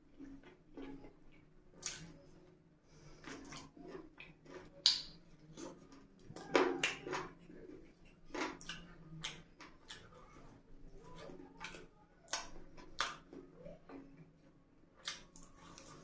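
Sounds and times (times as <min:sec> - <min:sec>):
person chewing wetly: 0:00.1 - 0:16.0
lip smacks: 0:01.8 - 0:02.3, 0:15.0 - 0:16.0.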